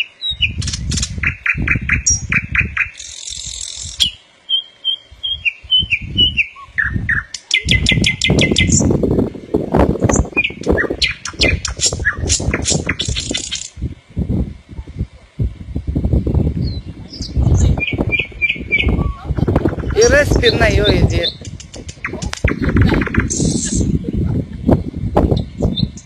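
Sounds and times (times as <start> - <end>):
birds chirping and trilling: 0.0 - 9.0, 10.0 - 13.8, 16.2 - 26.0
low thumps and rumbles: 7.7 - 26.0.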